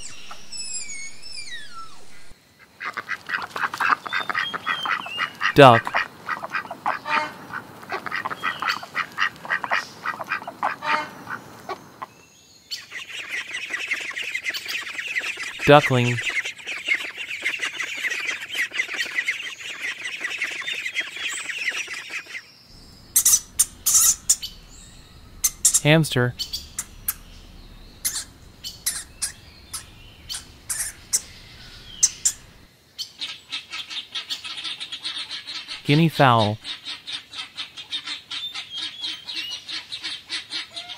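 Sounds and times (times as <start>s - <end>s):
ducks quacking: 2.8s - 11.8s, 22.8s - 32.7s
hamster squeaking: 23.0s - 32.6s.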